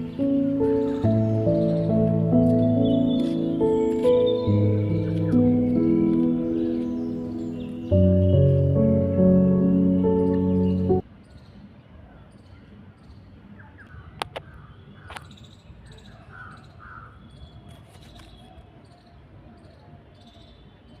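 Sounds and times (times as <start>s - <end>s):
background music: 0.0s - 11.0s
short chirping calls: 0.0s - 11.0s
faint outdoor ambience: 0.0s - 21.0s.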